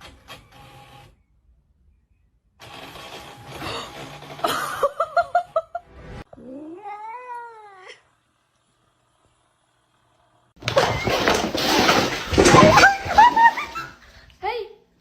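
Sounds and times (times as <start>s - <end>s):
cat caterwauling: 6.4s - 8.0s.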